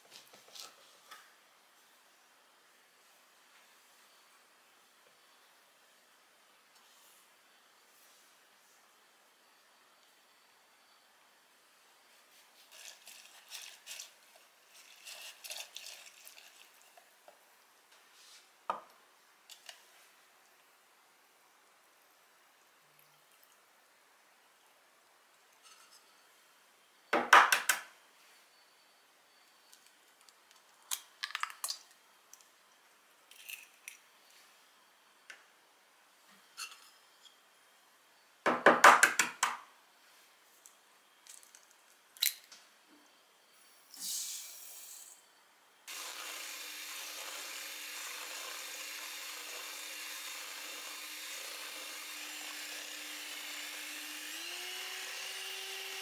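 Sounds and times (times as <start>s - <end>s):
electric mixer running: 45.9s - 56.0s.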